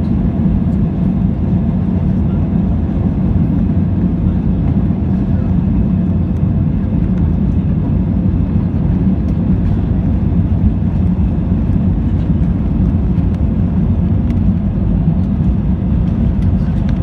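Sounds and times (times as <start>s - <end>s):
airplane engines rumbling: 0.0s - 17.0s.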